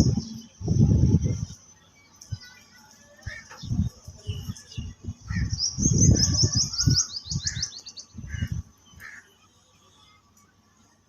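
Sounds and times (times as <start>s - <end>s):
songbird chirping: 0.0s - 10.6s.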